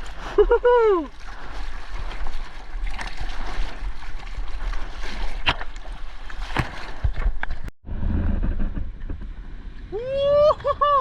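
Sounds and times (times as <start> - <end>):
seawater sloshing and splashing: 0.0 - 7.7
wind rumble on microphone: 6.9 - 11.0.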